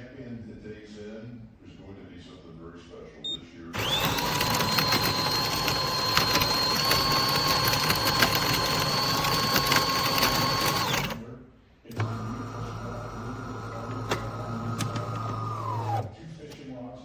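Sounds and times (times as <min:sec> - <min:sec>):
electric motor whine with clicks: 0:03.8 - 0:11.2, 0:13.5 - 0:16.1.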